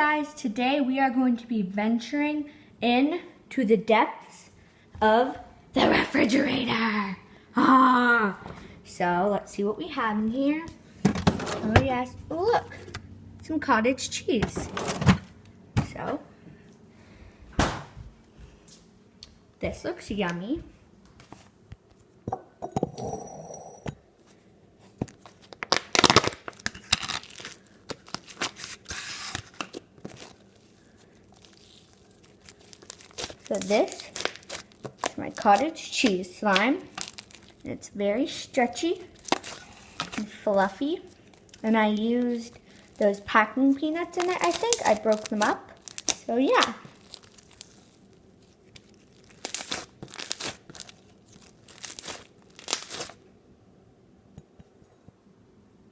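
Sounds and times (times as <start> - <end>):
slime with packing peanuts crackling: 25.1 - 53.2.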